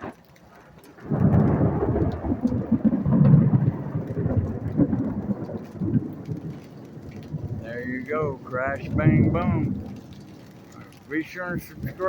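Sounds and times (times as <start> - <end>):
rain falling: 0.0 - 12.0
thunder rumbling: 0.0 - 12.0.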